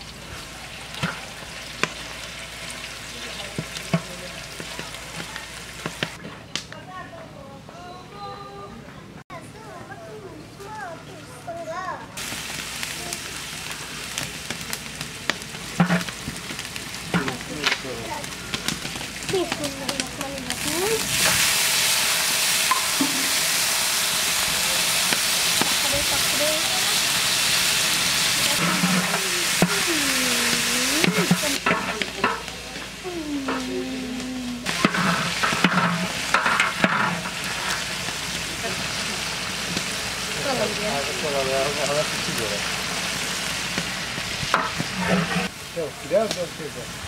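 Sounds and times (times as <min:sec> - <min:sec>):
onions frying in hot oil: 0:00.0 - 0:06.6, 0:12.2 - 0:47.0
metal spatula scraping pot: 0:28.4 - 0:29.8, 0:31.0 - 0:32.5, 0:34.7 - 0:38.0, 0:44.6 - 0:45.5.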